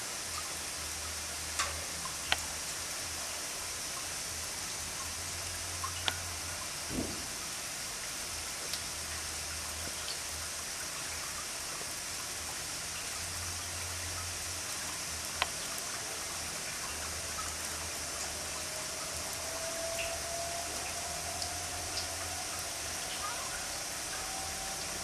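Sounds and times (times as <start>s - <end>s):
water showering down: 0.0s - 25.0s.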